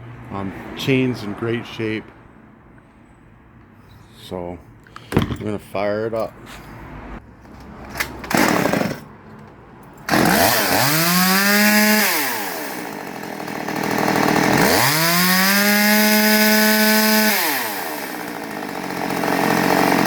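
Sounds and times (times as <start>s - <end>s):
chainsaw starting and revving: 8.0s - 9.1s, 10.0s - 20.0s.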